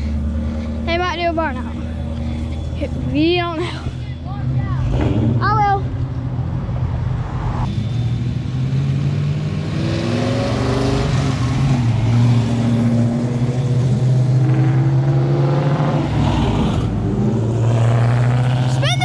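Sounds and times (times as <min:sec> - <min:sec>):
car engine revving: 0:04.3 - 0:19.0.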